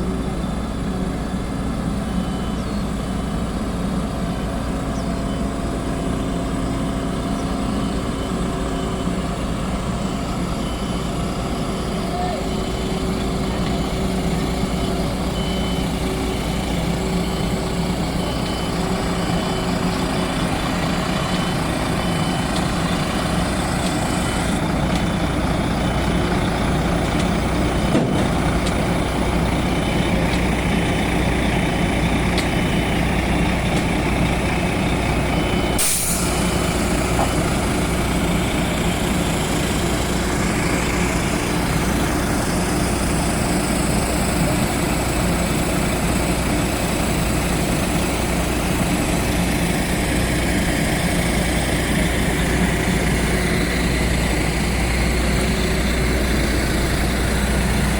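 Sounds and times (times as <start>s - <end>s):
lorry engine running: 0.0s - 57.9s
reversing alarm beeping: 0.0s - 57.9s
air brake hiss: 35.8s - 36.8s.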